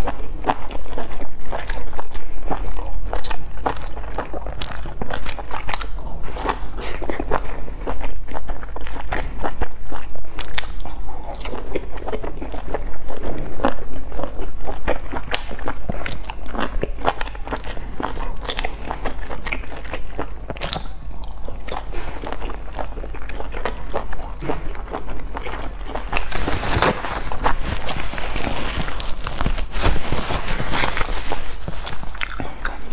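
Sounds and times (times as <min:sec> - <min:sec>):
person chewing food: 0:00.0 - 0:32.9
rustling: 0:25.0 - 0:32.4.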